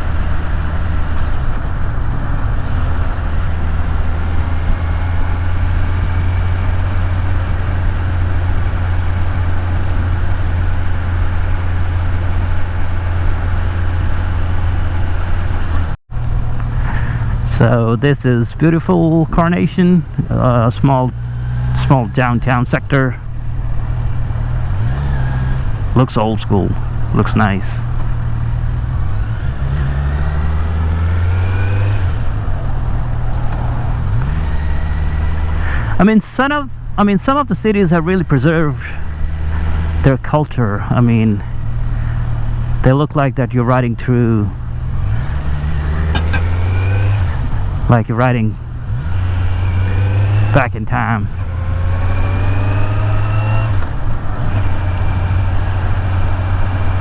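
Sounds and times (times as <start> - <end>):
motorcycle engine cruising: 0.0 - 43.0, 43.7 - 57.0
wind and road noise: 0.0 - 57.0.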